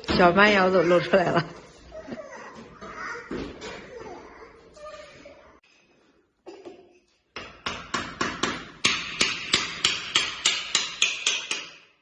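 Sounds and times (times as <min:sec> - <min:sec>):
hammer strikes: 0:07.4 - 0:11.9.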